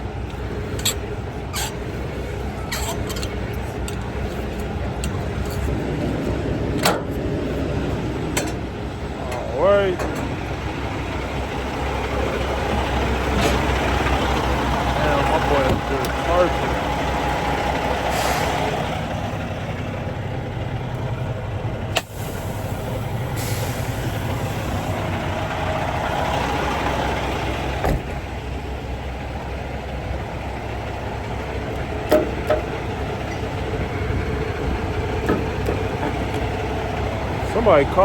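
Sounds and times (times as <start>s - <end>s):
diesel truck engine idling: 0.0s - 38.0s
air hissing: 22.0s - 25.1s.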